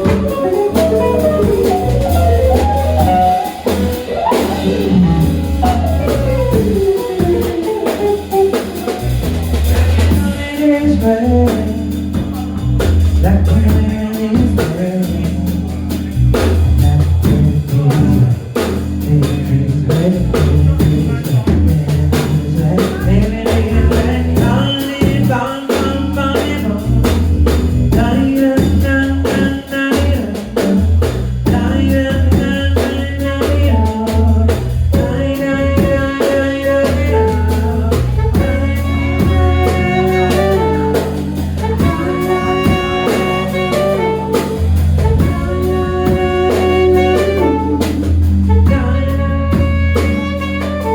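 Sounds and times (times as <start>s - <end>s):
melodic lead line: 0.0s - 16.2s, 35.0s - 50.9s
bass line: 0.0s - 50.9s
drum kit beat: 0.0s - 50.9s
keyboard chords: 0.0s - 50.9s.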